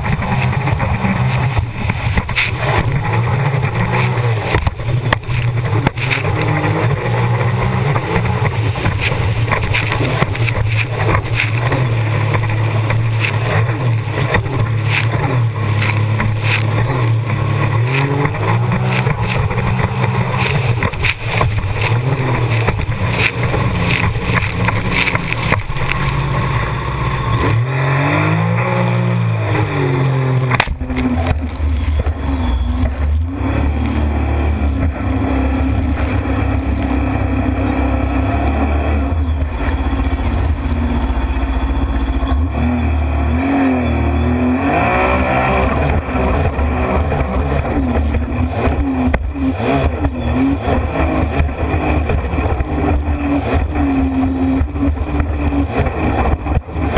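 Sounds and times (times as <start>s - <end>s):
constant rushing noise: 0.0s - 56.9s
jet ski engine running hard: 0.0s - 56.9s.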